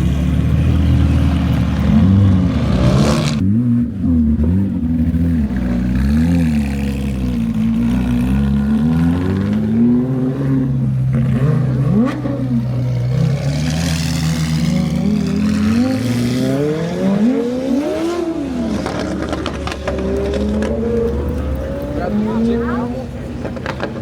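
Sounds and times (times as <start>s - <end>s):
sports car engines revving: 0.0s - 24.0s.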